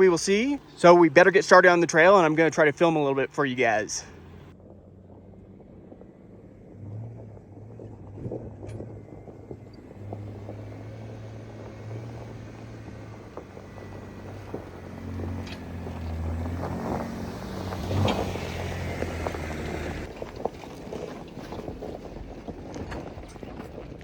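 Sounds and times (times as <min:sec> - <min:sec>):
car engine running at low speed: 0:00.0 - 0:24.0.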